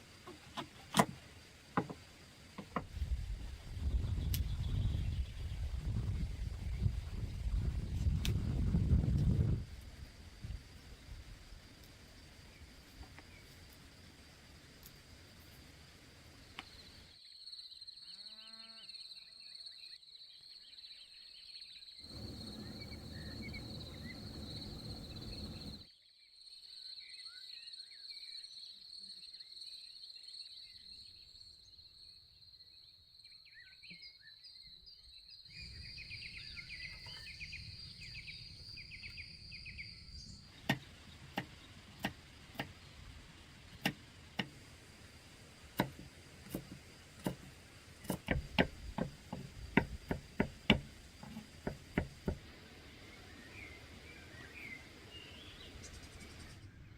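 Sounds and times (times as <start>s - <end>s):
insect drone: 1.1s - 20.6s, 22.0s - 33.6s, 34.5s - 56.9s
distant cow lowing: 22.1s - 25.8s
sharp knocks: 22.1s - 25.8s
bird chirps: 22.1s - 25.9s, 33.4s - 42.1s.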